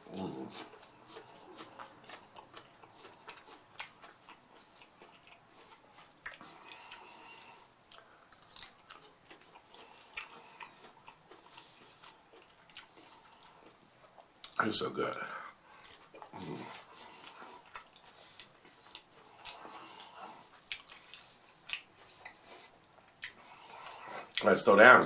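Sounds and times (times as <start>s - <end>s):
soft chewing: 0.0s - 25.0s
taco shells crunching: 7.8s - 14.6s.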